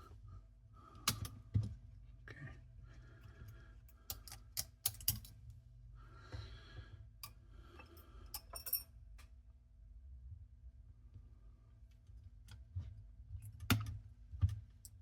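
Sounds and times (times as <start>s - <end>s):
faint steady hum: 0.0s - 15.0s
clicks and taps of small parts: 4.1s - 5.4s.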